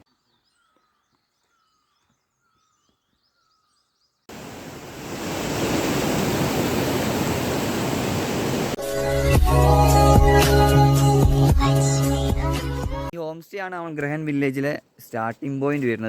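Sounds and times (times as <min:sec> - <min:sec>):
waterfall roaring: 0:04.3 - 0:08.8.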